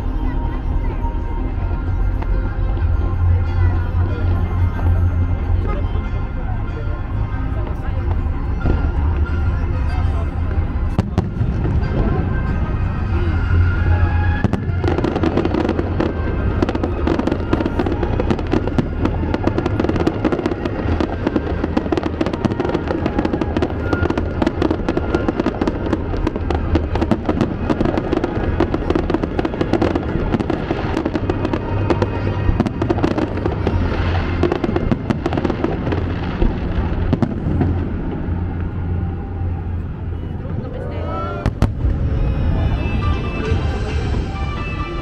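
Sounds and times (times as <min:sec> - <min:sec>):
fireworks crackling and banging: 0:00.0 - 0:45.0
music playing: 0:00.0 - 0:45.0.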